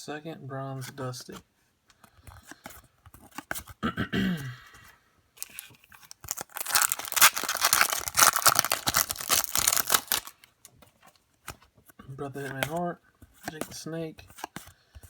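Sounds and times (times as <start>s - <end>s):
foil wrapper tearing and crinkling: 5.4s - 10.5s.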